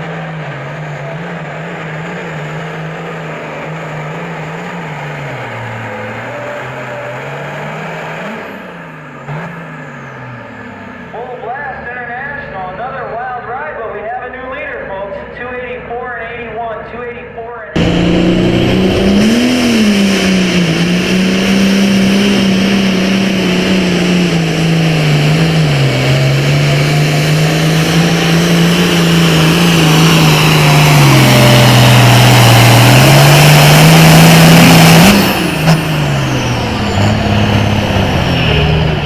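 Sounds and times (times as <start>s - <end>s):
tractor engine at full throttle: 0.0s - 15.8s, 17.8s - 39.0s
high whine: 17.8s - 39.0s.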